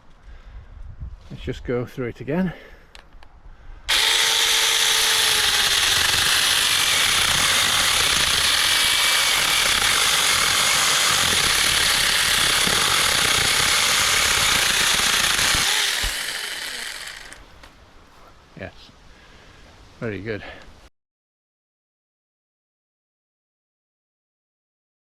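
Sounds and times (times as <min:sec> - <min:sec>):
chainsaw cutting a branch: 0:03.9 - 0:17.5.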